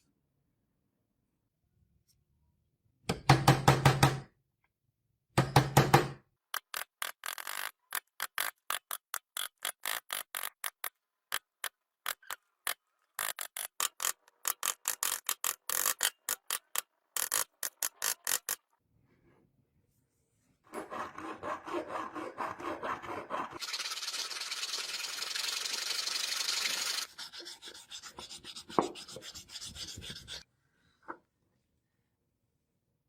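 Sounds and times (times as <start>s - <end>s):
hand file rasping on metal: 20.7s - 23.8s, 27.0s - 30.4s.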